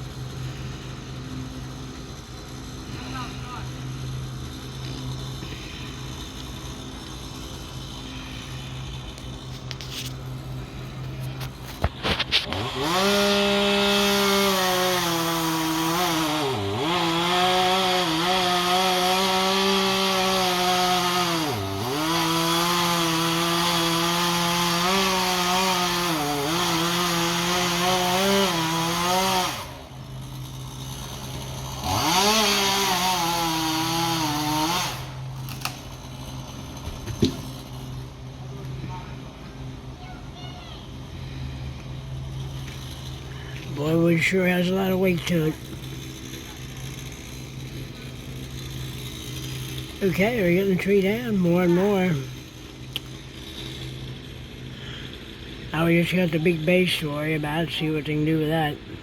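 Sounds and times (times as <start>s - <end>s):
chainsaw cutting wood: 0.0s - 38.8s, 39.6s - 59.0s
chainsaw idling: 0.0s - 59.0s.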